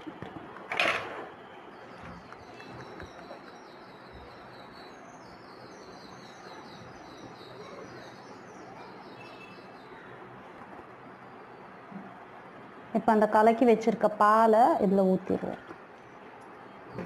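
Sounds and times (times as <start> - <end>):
low background noise: 0.0 - 17.0
birds chirping: 1.4 - 12.0.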